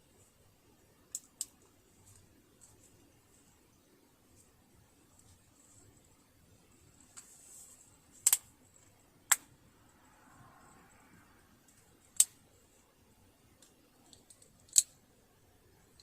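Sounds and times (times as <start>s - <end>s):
soft rustle: 0.0s - 9.1s
metal parts clicking: 1.1s - 2.7s, 13.6s - 14.9s.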